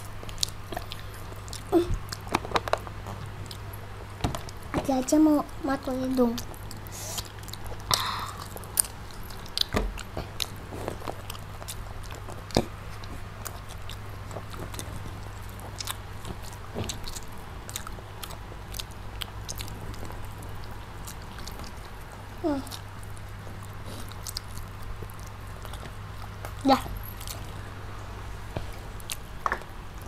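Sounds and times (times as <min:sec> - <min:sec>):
children chewing and biting: 0:00.0 - 0:27.8, 0:28.4 - 0:30.0
steady low hum: 0:00.0 - 0:30.0
small clicks and smacks: 0:00.2 - 0:03.6.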